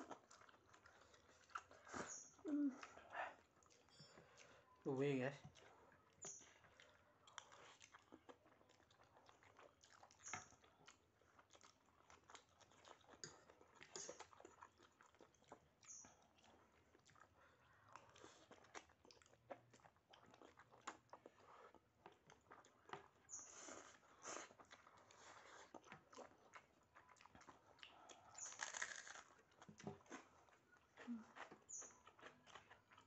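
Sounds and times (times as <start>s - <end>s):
person chewing food: 0.0s - 4.8s, 5.4s - 33.0s.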